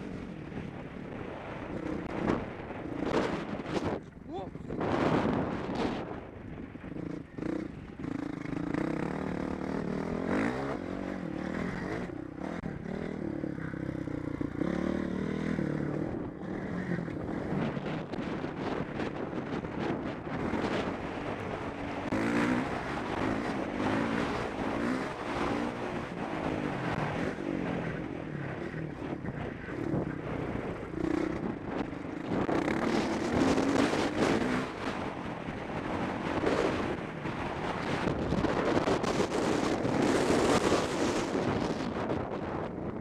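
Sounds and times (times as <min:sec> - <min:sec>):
wind rushing over microphone: 0:00.0 - 0:43.0
motocross bike engine revving: 0:07.0 - 0:17.8, 0:20.1 - 0:27.8, 0:30.9 - 0:35.1.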